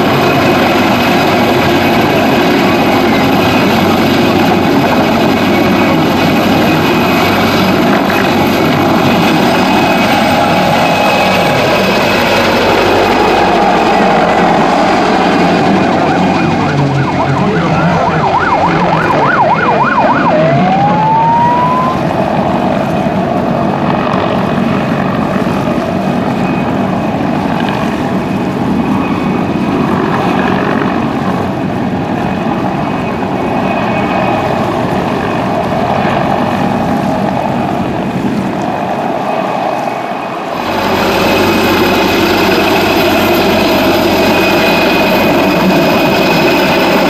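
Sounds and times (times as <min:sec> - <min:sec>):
helicopter noise: 0:00.0 - 0:47.0
siren warbling and wailing: 0:00.3 - 0:24.1.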